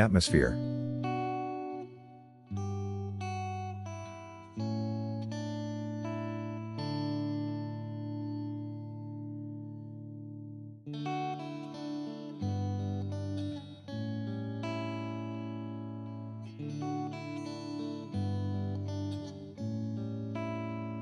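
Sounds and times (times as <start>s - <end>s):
acoustic guitar plucked chords: 0.0s - 10.0s.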